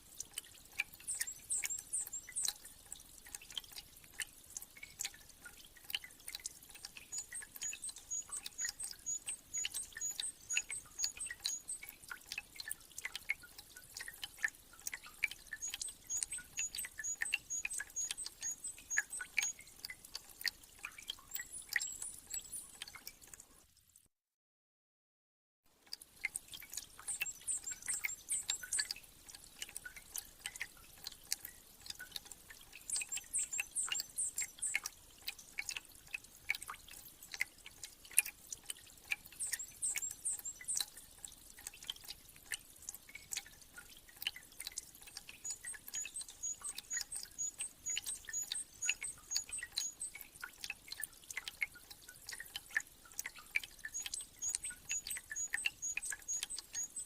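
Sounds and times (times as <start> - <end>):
meltwater dripping: 0.0 - 23.7, 25.7 - 57.0
small birds twittering: 1.0 - 2.5, 7.0 - 11.9, 15.0 - 19.8, 21.0 - 22.8, 27.0 - 29.0, 32.8 - 34.9, 39.3 - 40.8, 45.4 - 50.2, 53.8 - 57.0.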